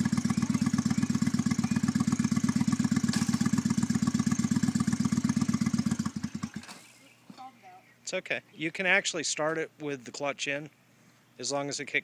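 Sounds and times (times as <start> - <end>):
motorcycle engine idling and stalling: 0.0 - 6.9.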